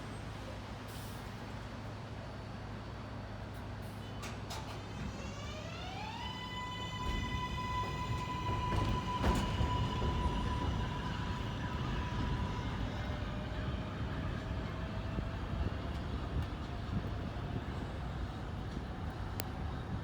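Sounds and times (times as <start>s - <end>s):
rumble of wheels on track: 0.0s - 20.0s
train traction motors whining: 5.2s - 20.0s.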